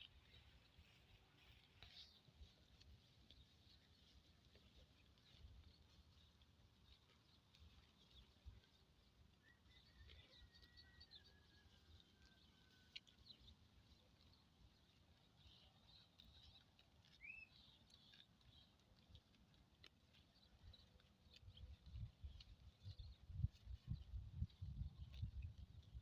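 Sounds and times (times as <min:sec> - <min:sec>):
faint bird chirps: 0:17.2 - 0:18.7.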